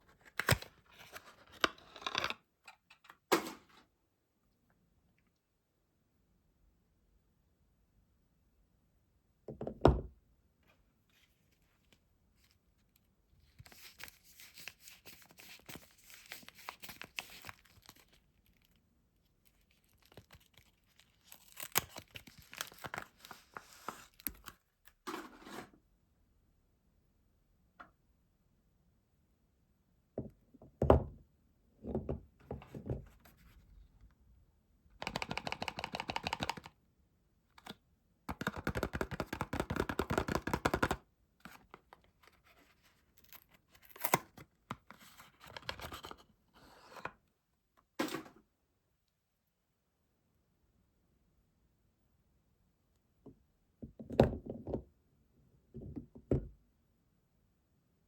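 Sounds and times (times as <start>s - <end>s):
packaging crinkling and tearing: 13.6s - 18.8s, 19.4s - 24.6s.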